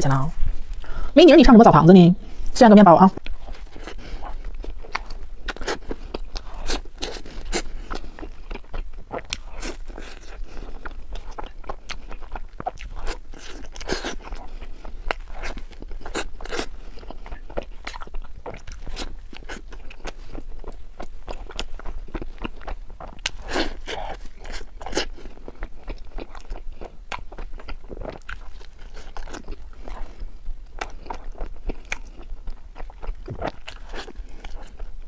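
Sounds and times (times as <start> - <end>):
crusty bread crunching: 3.2 - 35.0
person chewing: 3.2 - 35.0.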